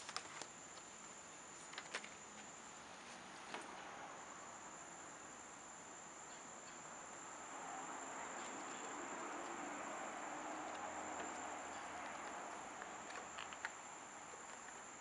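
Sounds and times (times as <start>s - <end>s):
soft rustle: 0.0s - 3.8s
steady high-pitched whine: 0.0s - 15.0s.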